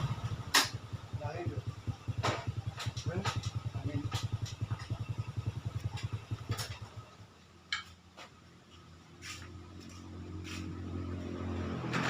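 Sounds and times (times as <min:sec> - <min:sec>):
two-stroke motorcycle engine running: 0:00.0 - 0:07.9.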